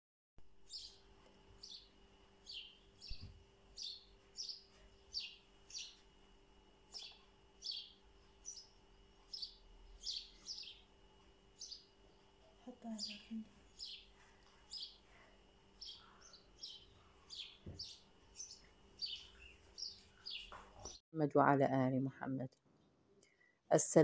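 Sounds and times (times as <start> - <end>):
faint steady hum: 0.4 - 24.0
bird chirping: 0.6 - 6.1, 6.9 - 10.9, 11.5 - 21.0.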